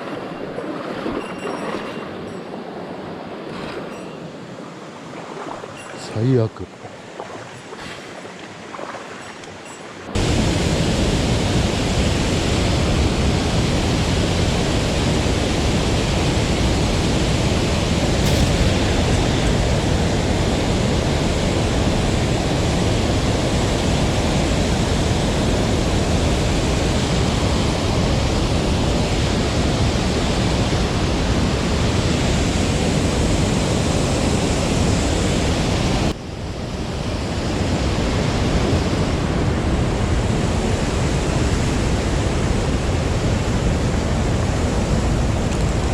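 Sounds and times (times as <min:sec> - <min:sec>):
stream water rushing: 0:00.0 - 0:36.2.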